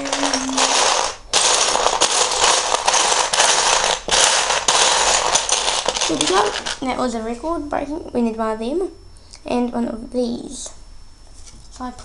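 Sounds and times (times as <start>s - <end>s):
plastic bricks clattering: 0.0s - 6.9s.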